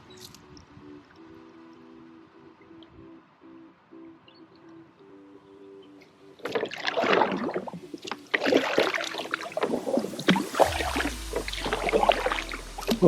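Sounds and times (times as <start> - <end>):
background music: 0.0 - 13.0
water splashing beside kayak: 6.4 - 13.0.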